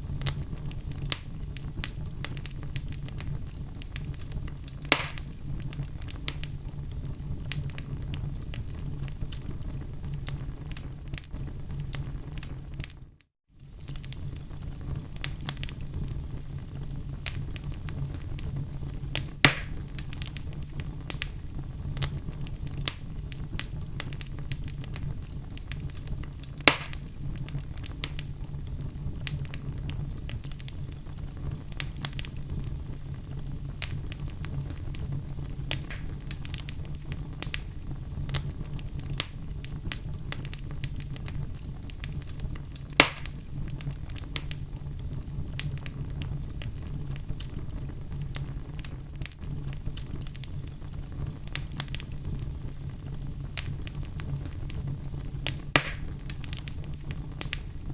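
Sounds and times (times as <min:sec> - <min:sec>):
loud fire pops: 0:00.0 - 0:57.9
wood logs crackling in fireplace: 0:00.0 - 0:57.9.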